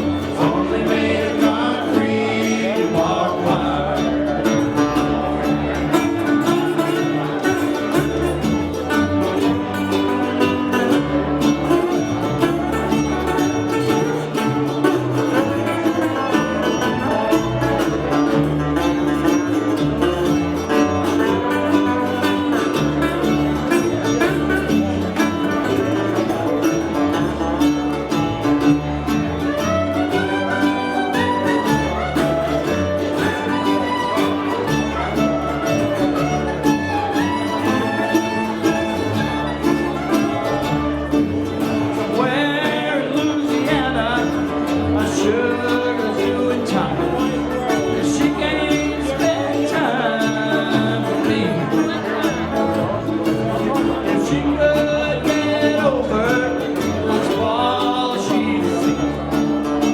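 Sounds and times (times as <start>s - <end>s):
live band playing instrumental: 0.0s - 59.9s
steady bass line: 0.0s - 59.9s.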